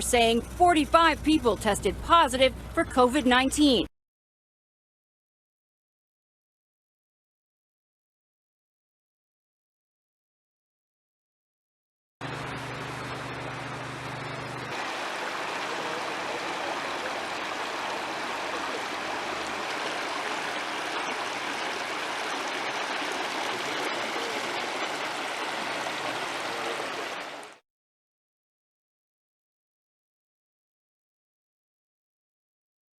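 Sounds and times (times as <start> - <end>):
floodwater rushing: 12.2 - 27.6.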